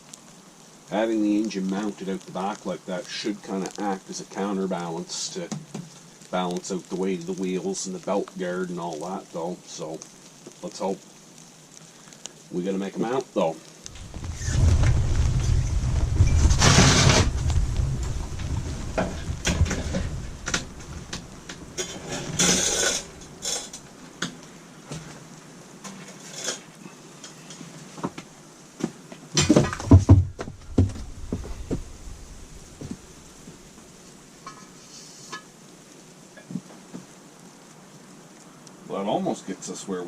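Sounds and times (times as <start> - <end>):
low rumble: 13.9 - 23.8, 29.8 - 34.2
steel pieces clanking and scraping: 21.8 - 23.8.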